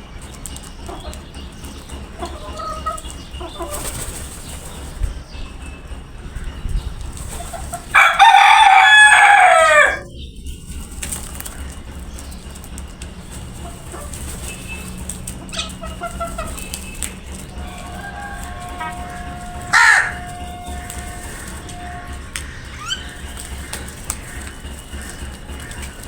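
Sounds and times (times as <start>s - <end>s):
rooster crowing: 7.8s - 10.2s, 17.1s - 26.0s
faint bird calls: 11.3s - 26.0s.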